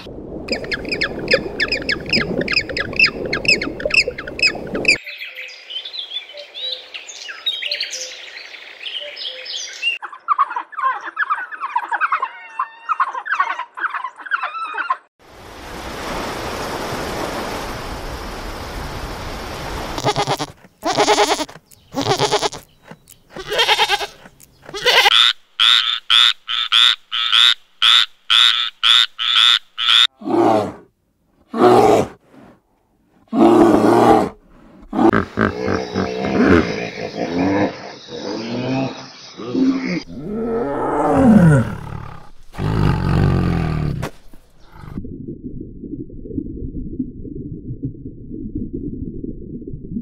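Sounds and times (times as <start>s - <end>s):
low heavy animal calls: 33.4s - 45.0s.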